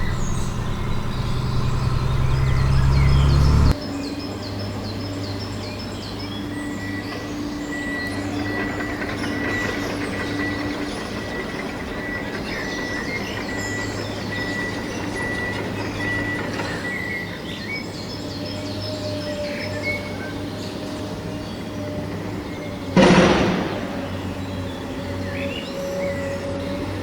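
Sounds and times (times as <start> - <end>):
high whine: 0.0 - 3.7
birds chirping: 0.0 - 3.8.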